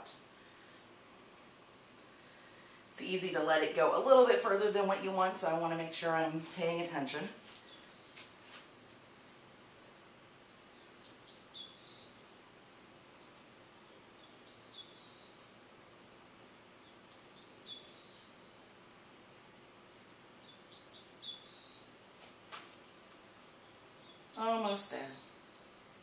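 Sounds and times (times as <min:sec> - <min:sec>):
songbird singing: 0:03.0 - 0:09.3, 0:10.6 - 0:16.1, 0:16.7 - 0:18.8, 0:19.8 - 0:22.0, 0:22.8 - 0:26.0.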